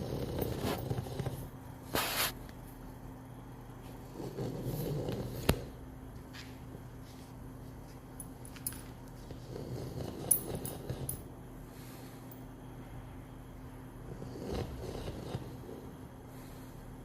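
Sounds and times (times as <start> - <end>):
dog snoring: 0.0 - 1.6, 4.0 - 5.8, 9.2 - 11.3, 14.0 - 16.7.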